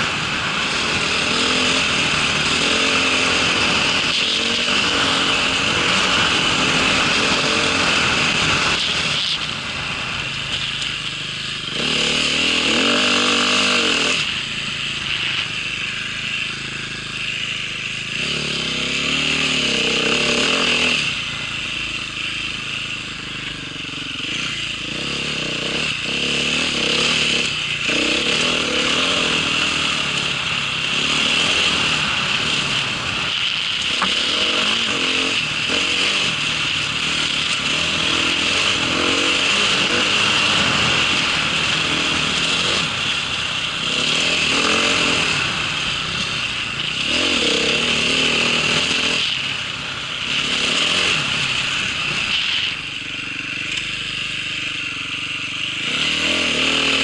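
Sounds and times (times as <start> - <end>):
small engine revving under load: 0.0 - 10.9, 11.6 - 57.0.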